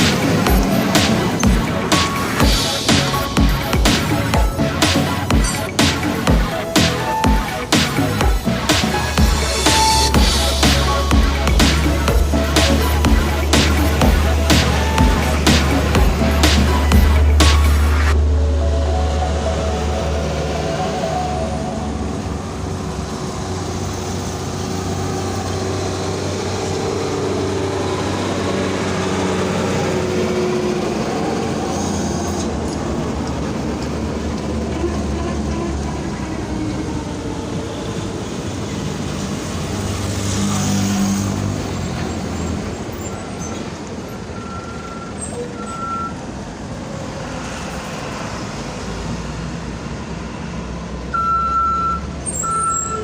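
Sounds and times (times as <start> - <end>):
diesel truck engines running: 0.0 - 53.0
reversing beeps: 43.0 - 46.3, 51.1 - 53.0.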